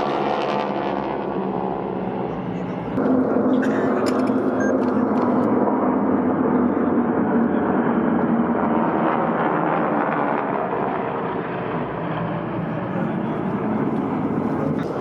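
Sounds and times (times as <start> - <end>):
propeller planes droning overhead: 0.0 - 15.0.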